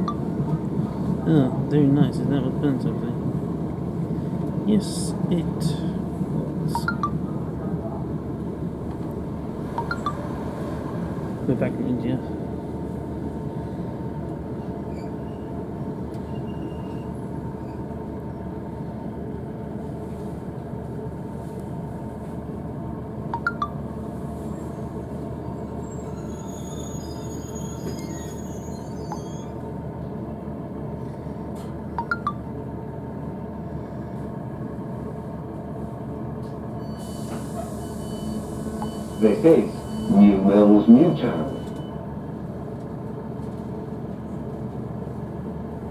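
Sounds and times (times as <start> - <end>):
train running gear rumble: 0.0 - 45.9.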